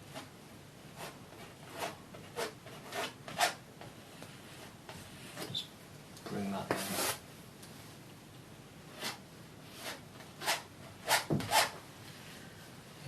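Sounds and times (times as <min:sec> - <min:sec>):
painting knife scraping canvas: 0:01.0 - 0:05.7, 0:06.7 - 0:07.2, 0:08.9 - 0:11.8.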